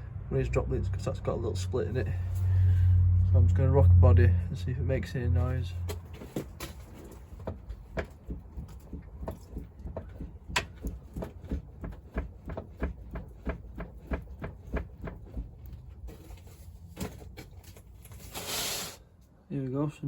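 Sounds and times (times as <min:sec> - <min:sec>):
suspension link knocking: 0:05.9 - 0:16.0.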